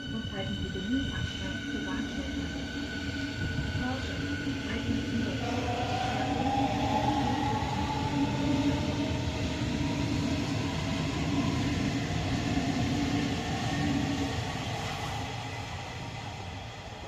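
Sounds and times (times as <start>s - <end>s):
train motor humming: 0.0s - 15.8s
electric train wheels rumbling: 0.0s - 17.0s.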